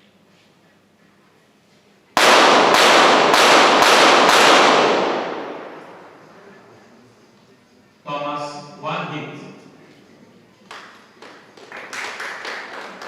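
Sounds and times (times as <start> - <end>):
rapid pistol shots: 2.2 - 6.4
gunshot echo: 2.2 - 6.6.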